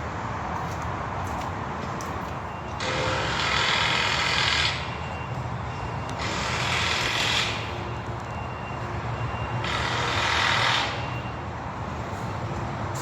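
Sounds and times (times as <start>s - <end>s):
heavy vehicle engine running: 0.0s - 13.0s
reversing beeps: 2.3s - 11.6s.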